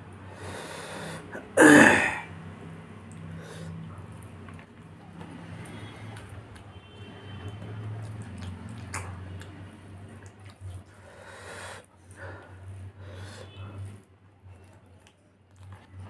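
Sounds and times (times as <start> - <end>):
wet chewing: 3.0 - 11.4, 12.0 - 16.0.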